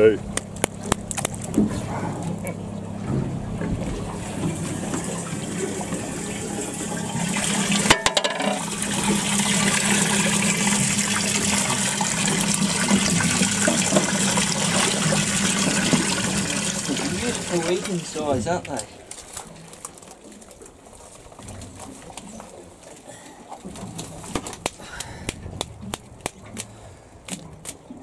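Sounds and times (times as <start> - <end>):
steady low hum: 0.0 - 18.5
water gushing from a hose: 4.2 - 18.2.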